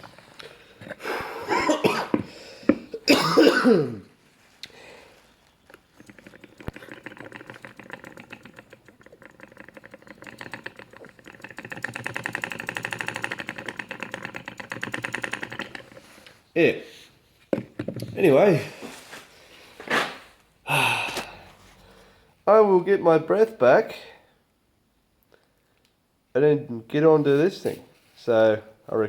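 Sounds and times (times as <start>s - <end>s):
model steam engine ticking: 6.0s - 16.1s
loud blowing breath: 20.7s - 22.4s.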